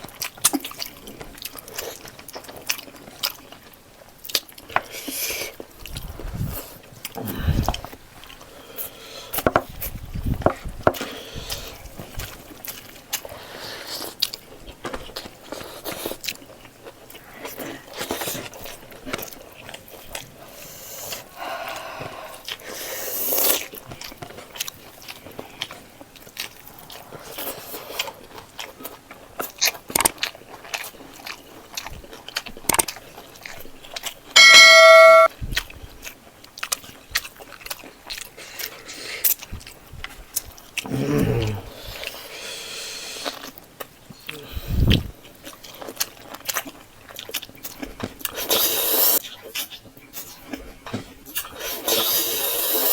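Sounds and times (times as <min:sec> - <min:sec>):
person chewing food: 0:00.0 - 0:34.4, 0:35.5 - 0:52.9
loud bell-like ring: 0:34.4 - 0:35.3.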